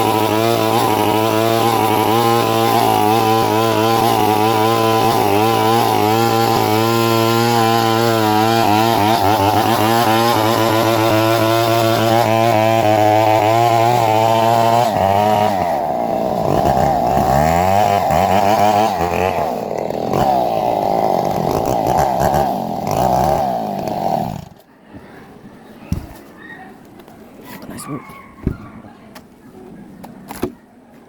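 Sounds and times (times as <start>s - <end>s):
chainsaw revving: 0.0s - 24.7s.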